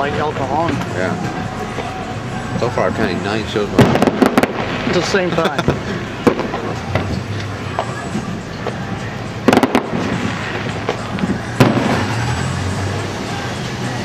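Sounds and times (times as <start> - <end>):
fireworks bangs: 0.0 - 14.0
rumble of explosions: 3.4 - 14.0.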